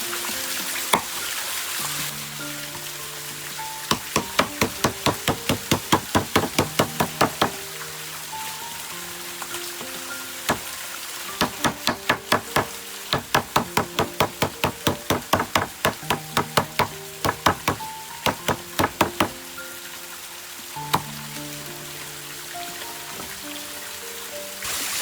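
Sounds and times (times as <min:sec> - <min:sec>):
background music: 0:00.0 - 0:25.0
rapid sharp knocks: 0:03.9 - 0:07.6, 0:10.5 - 0:10.8, 0:11.4 - 0:19.4.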